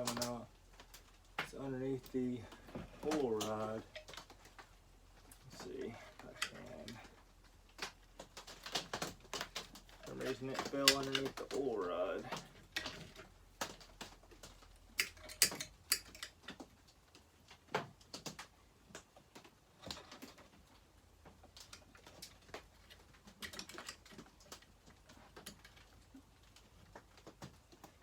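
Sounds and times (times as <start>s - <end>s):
small metal parts clicking: 8.4s - 16.6s, 21.6s - 24.7s.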